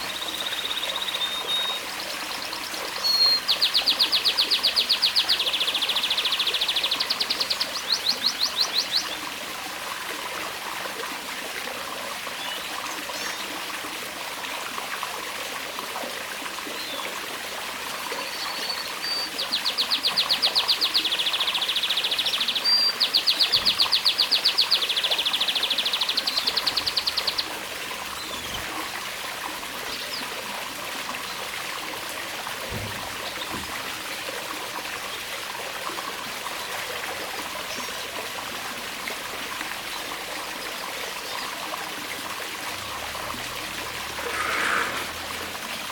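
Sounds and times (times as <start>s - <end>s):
trickle of running water: 0.0s - 45.9s
canary singing trills: 18.5s - 28.7s.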